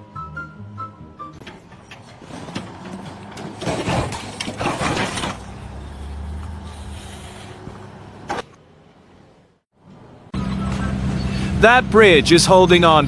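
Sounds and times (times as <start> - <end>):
heavy vehicle engine running: 1.3 - 13.0
noisy rattling: 1.4 - 8.6.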